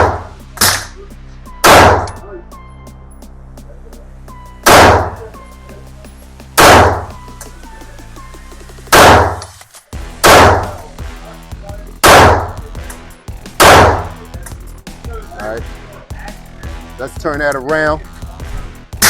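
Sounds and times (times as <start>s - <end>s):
pistol shots: 0.0s - 0.9s, 1.6s - 2.2s, 4.7s - 5.2s, 6.6s - 7.1s, 8.9s - 9.5s, 10.2s - 10.8s, 12.0s - 12.6s, 13.6s - 14.2s.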